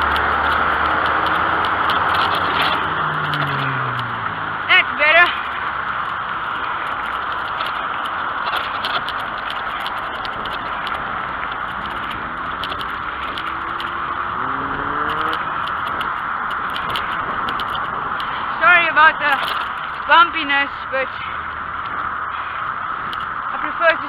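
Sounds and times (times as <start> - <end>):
vehicle engine rising in pitch: 0.0 - 4.7, 11.0 - 18.6
bicycle rattling clicks: 0.0 - 24.0
wind and tyre noise: 0.0 - 24.0.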